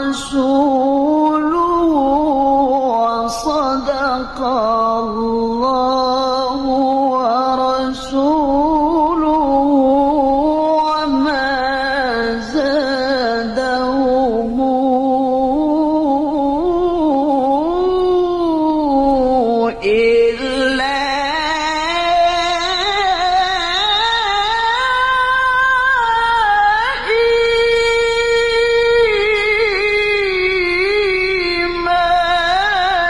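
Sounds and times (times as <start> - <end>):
man reciting melodically: 0.0 - 33.0.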